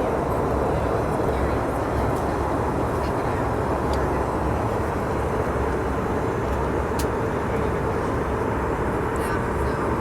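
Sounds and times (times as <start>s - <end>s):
airliner cabin engine noise: 0.0s - 10.0s.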